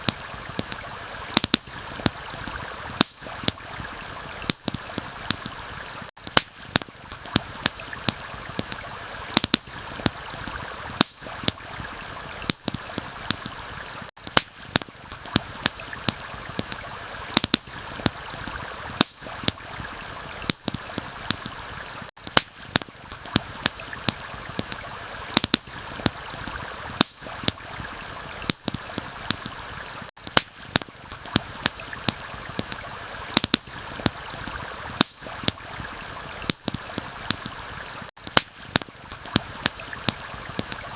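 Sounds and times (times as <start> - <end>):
stream rushing: 0.0 - 14.1, 14.8 - 22.1, 22.8 - 30.1, 30.9 - 38.1
campfire crackling and popping: 0.0 - 40.9.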